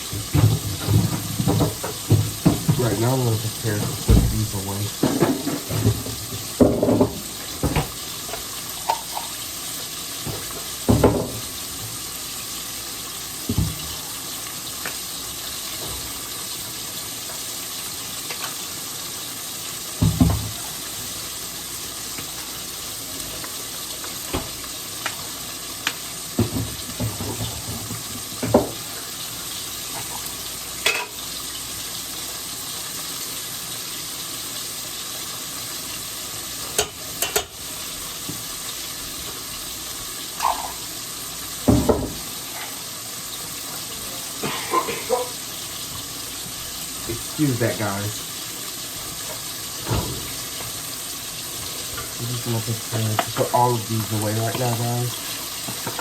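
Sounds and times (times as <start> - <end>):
food sizzling in oil: 0.0 - 56.0.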